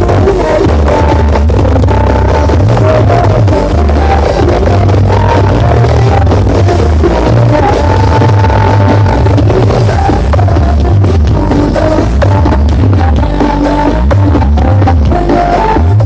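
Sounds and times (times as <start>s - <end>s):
loud dance music with heavy bass: 0.0s - 16.0s.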